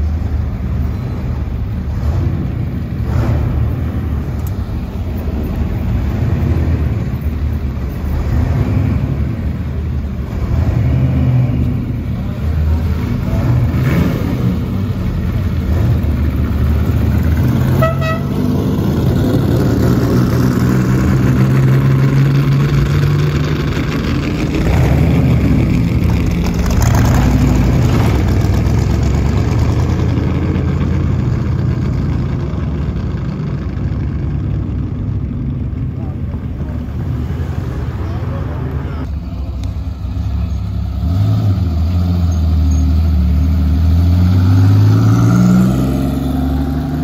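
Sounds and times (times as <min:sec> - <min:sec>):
loud car engines pulling away: 0:00.0 - 0:47.0
short car horn toot: 0:17.8 - 0:18.4.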